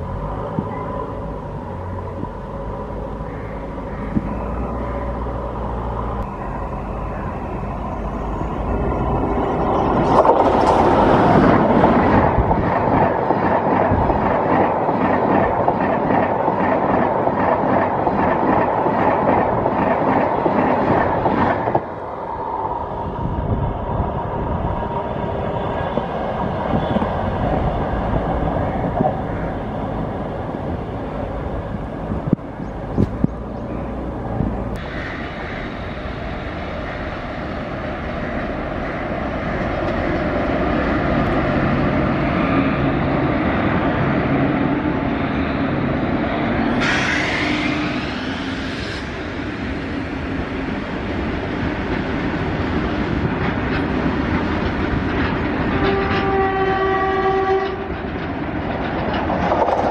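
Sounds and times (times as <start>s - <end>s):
train wheels clacking over rail joints: 53.2s - 59.9s.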